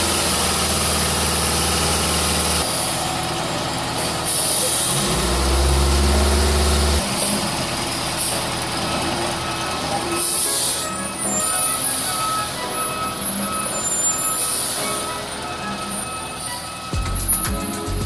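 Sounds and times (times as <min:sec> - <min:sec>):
truck diesel engine under load: 0:00.0 - 0:11.0.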